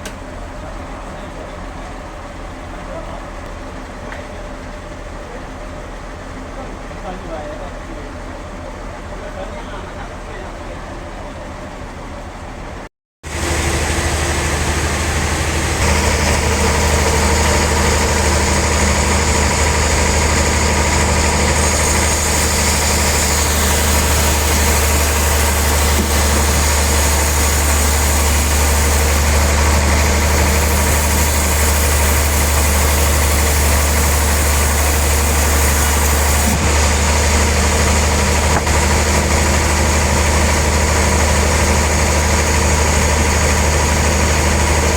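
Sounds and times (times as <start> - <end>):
sawmill machinery humming: 13.2 - 44.9.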